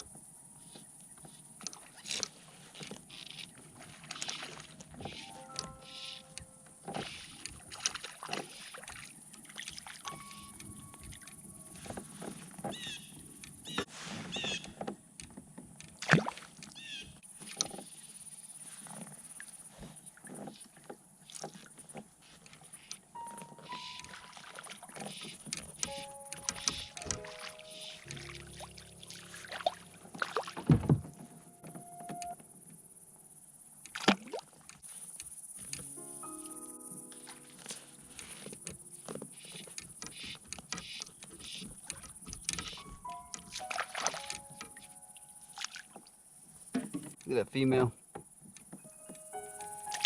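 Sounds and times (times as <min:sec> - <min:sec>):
background music with held chords: 0:05.2 - 0:06.9, 0:23.2 - 0:24.4, 0:25.8 - 0:32.4, 0:35.7 - 0:39.2, 0:42.9 - 0:45.6, 0:48.8 - 0:50.0
boat knocking and sloshing: 0:06.4 - 0:33.1, 0:36.9 - 0:50.0
sharp knocks and thumps: 0:30.1 - 0:31.8, 0:46.7 - 0:47.3.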